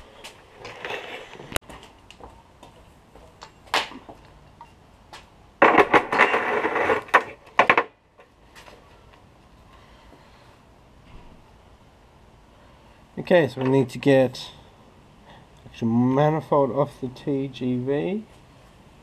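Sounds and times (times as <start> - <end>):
knocks and rustles: 5.2 - 8.8.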